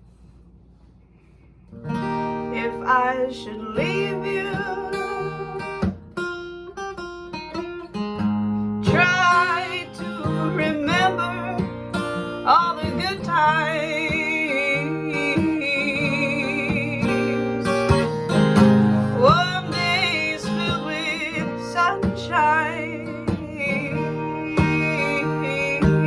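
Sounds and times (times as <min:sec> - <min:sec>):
acoustic guitar: 0:00.0 - 0:26.0
woman singing with vibrato: 0:02.5 - 0:05.9, 0:08.8 - 0:11.8, 0:12.4 - 0:17.7, 0:19.2 - 0:26.0.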